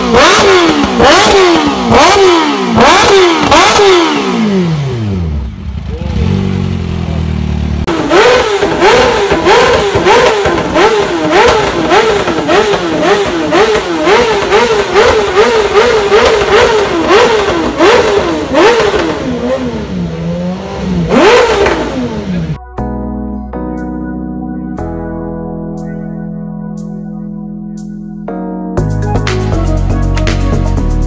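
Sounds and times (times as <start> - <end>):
motorcycle engine revving: 0.0 - 22.6
exhaust cracks: 7.6 - 22.4.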